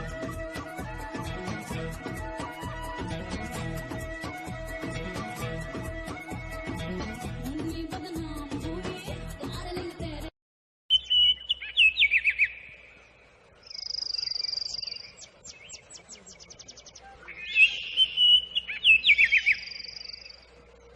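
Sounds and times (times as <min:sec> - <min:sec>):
music: 0:00.0 - 0:10.3
bird singing: 0:10.9 - 0:20.9.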